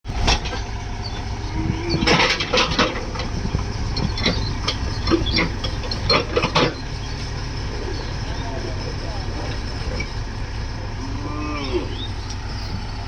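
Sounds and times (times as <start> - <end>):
diesel engine running: 0.0 - 13.0
sharp knocks and clatters: 0.1 - 1.3, 1.9 - 7.2.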